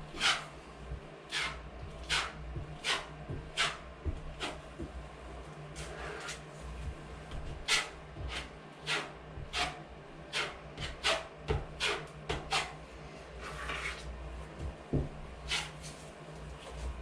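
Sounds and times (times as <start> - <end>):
scraping on joint compound: 0.1 - 0.5, 1.3 - 4.9, 5.8 - 12.8, 13.4 - 14.1, 15.4 - 16.1.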